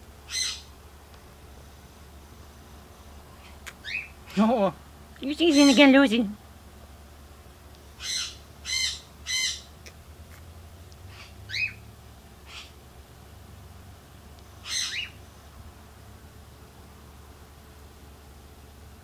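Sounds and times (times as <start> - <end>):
rising bird chirp: 0.2 - 0.7, 3.3 - 4.2, 8.0 - 9.7, 11.1 - 12.8, 14.6 - 15.2
birds squawking: 0.3 - 0.7, 3.4 - 4.2, 5.4 - 6.1, 8.0 - 9.7, 11.1 - 11.8, 12.4 - 12.8, 14.6 - 15.2.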